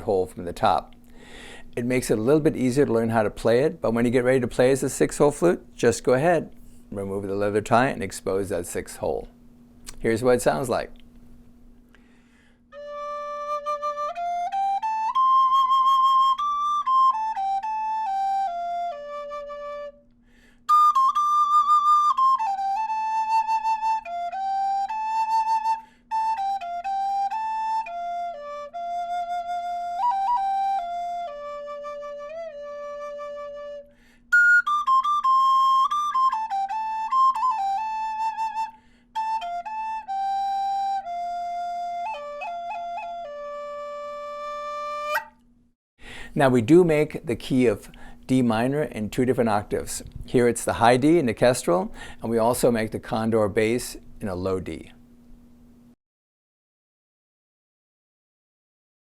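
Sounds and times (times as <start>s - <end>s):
wooden flute melody: 12.7s - 45.5s.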